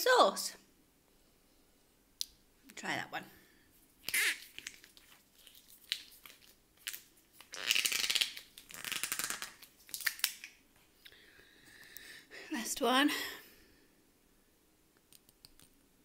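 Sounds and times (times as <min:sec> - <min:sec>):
crackly crunching: 0:04.1 - 0:10.6.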